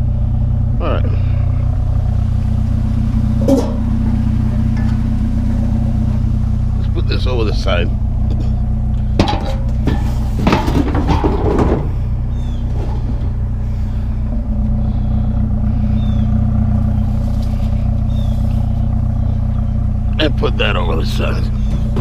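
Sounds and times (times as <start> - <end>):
truck engine idling: 0.0 - 22.0
scrap metal clattering: 3.0 - 6.8, 8.3 - 14.4, 21.3 - 22.0.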